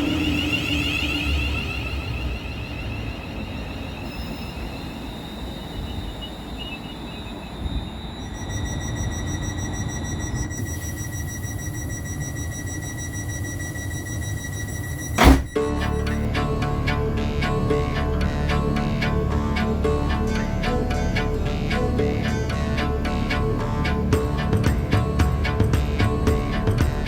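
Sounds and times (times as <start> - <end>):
wheels squealing on track: 0.0 - 16.3.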